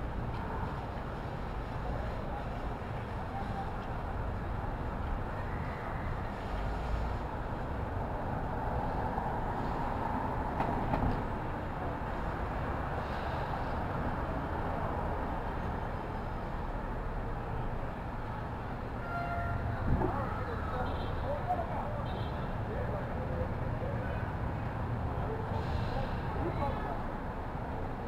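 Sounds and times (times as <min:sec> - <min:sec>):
traffic rumble and hiss: 0:00.0 - 0:28.0.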